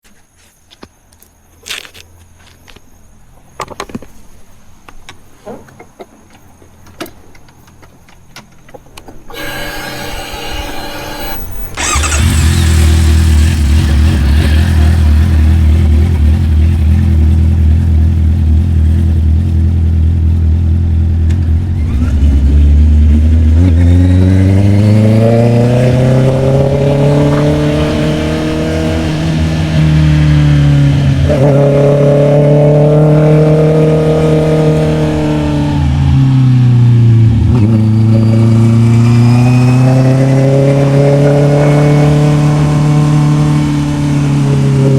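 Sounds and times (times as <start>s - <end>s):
motorcycle engine revving: 9.3s - 44.9s.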